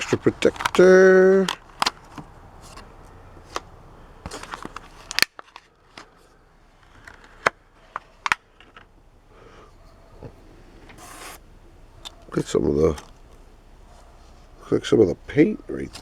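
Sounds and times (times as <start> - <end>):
plastic snaps: 0.0 - 6.2, 6.8 - 8.9
plastic packaging clicks and crackles: 0.0 - 8.9.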